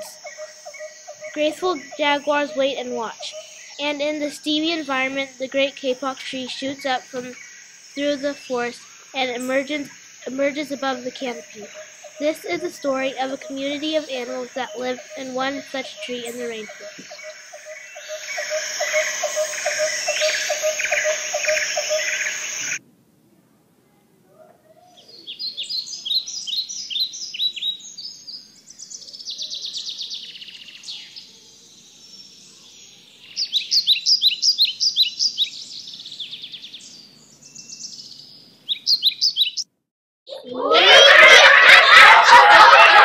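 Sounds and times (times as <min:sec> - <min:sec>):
birds chirping: 0:00.0 - 0:22.8, 0:25.0 - 0:39.7
rapidly pulsing bird call: 0:00.0 - 0:22.8.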